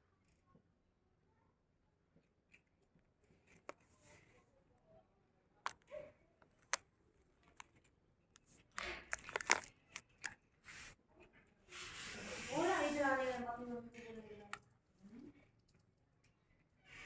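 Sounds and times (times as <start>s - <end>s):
crinkling rustles: 8.4s - 11.0s.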